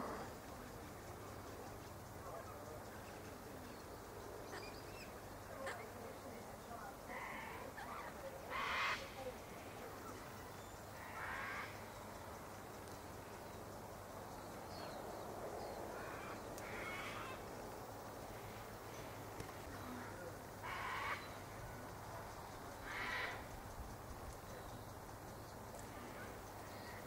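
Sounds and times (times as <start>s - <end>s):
harsh rasping bird calls: 7.1s - 12.0s, 16.0s - 17.4s, 20.6s - 21.6s, 22.7s - 23.8s.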